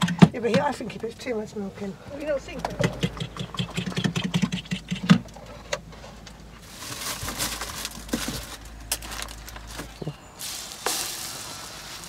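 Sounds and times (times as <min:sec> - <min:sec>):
bread frying in a pan: 0:10.4 - 0:12.0.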